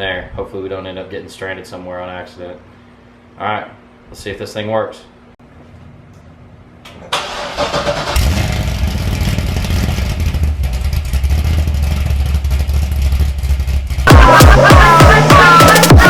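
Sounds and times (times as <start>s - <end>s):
car engine starting and running: 7.0s - 16.0s
electronic music with sweeps: 14.1s - 16.0s.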